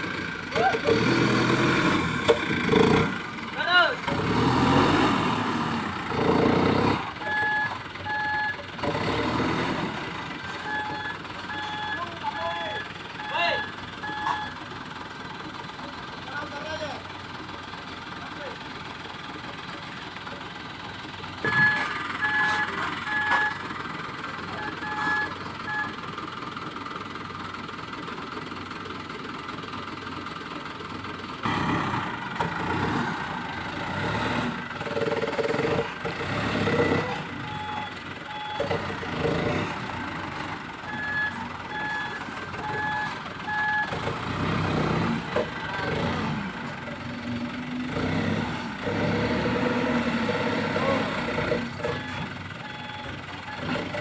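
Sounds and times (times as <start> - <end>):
truck engine running: 0.0 - 54.0
truck reversing alarm beeping: 4.3 - 15.2, 21.4 - 26.4, 31.4 - 54.0.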